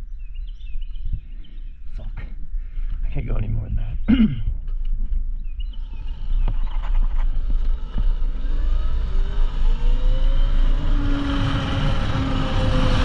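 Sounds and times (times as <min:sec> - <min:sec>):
wind rumble on microphone: 0:00.0 - 0:13.0
electric motor whining: 0:05.6 - 0:13.0.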